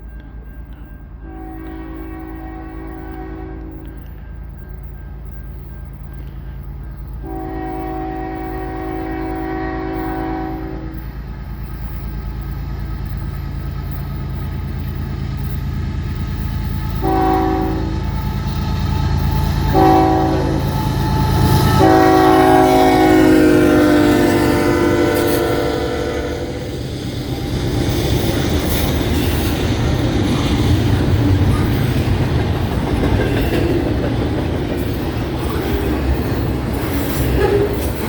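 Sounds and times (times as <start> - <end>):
locomotive engine rumble: 0.0 - 38.0
train horn blasts: 1.2 - 4.0, 7.2 - 11.2, 16.9 - 27.0, 37.2 - 38.0.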